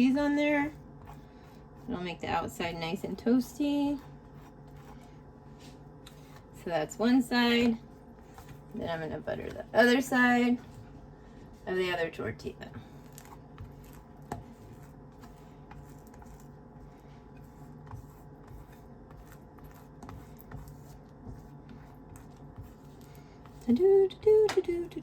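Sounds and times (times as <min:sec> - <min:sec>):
low steady hum: 0:00.0 - 0:25.0
knife scraping butter on tortilla: 0:12.9 - 0:23.8.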